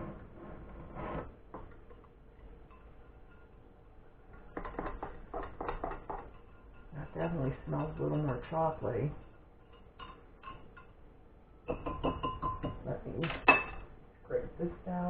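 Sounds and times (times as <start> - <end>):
utensil scraping and clicking in pan: 1.2 - 11.0.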